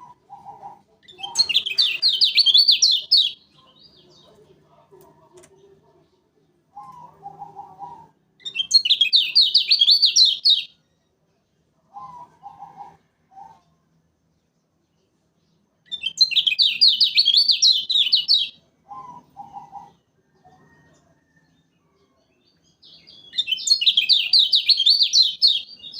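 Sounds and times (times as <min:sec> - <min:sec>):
bird high trilled song: 0:01.1 - 0:04.1, 0:08.4 - 0:10.8, 0:15.9 - 0:18.6, 0:22.8 - 0:25.9.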